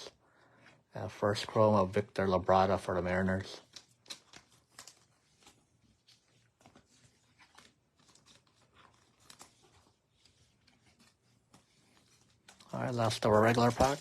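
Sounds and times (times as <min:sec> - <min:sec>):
card wrappers crinkling: 0:02.5 - 0:14.0.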